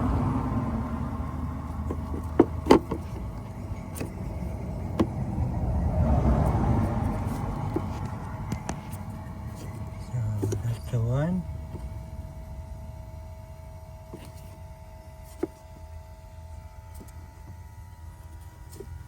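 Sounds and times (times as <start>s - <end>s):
low rumble: 0.0s - 10.3s
faint steady hum: 0.0s - 19.0s
sharp clicks and knocks: 1.7s - 4.3s.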